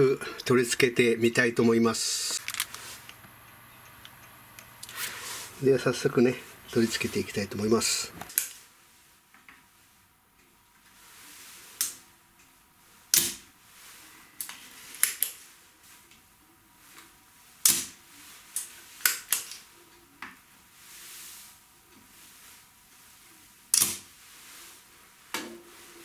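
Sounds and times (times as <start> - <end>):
clicks and knocks of small parts: 2.4 - 3.2.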